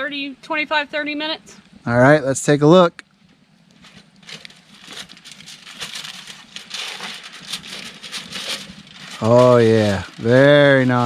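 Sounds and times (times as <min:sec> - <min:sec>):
aluminium foil crinkling: 0:03.6 - 0:11.0.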